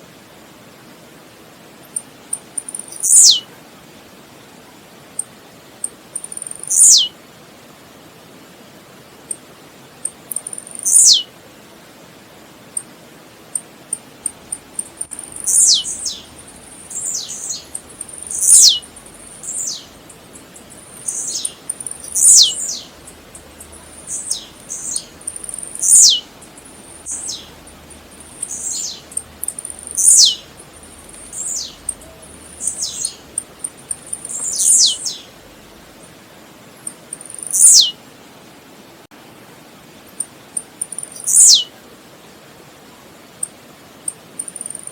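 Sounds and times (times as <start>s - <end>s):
faint high ticks: 1.9s - 3.2s, 5.2s - 6.9s, 10.0s - 11.1s, 13.5s - 36.1s, 36.8s - 37.8s, 40.2s - 41.4s, 43.4s - 44.9s
bird singing falling high notes: 15.0s - 26.3s, 27.0s - 33.3s.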